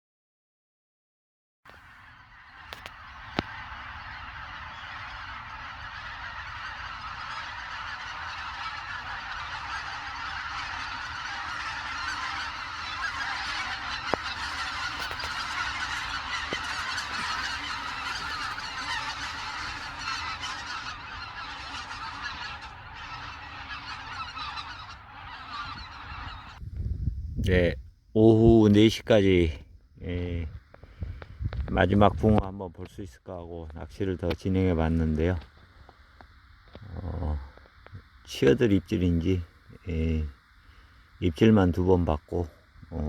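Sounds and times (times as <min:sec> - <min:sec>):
geese honking: 0:01.7 - 0:26.6.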